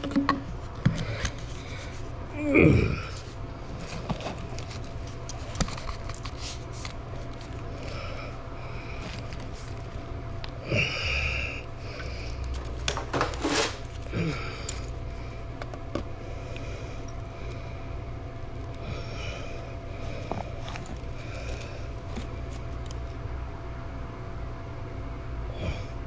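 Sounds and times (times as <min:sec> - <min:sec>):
pipe fittings clicking and knocking: 0:00.0 - 0:01.0
steady low hum: 0:00.0 - 0:26.0.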